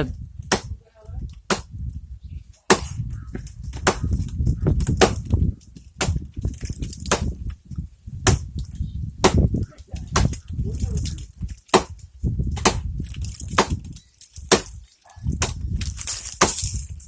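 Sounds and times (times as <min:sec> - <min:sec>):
axe chopping tree trunk: 0:00.5 - 0:00.8, 0:01.4 - 0:01.7, 0:02.7 - 0:03.0, 0:03.7 - 0:04.2, 0:04.8 - 0:05.4, 0:06.0 - 0:07.4, 0:08.2 - 0:08.5, 0:09.2 - 0:10.4, 0:11.6 - 0:16.7.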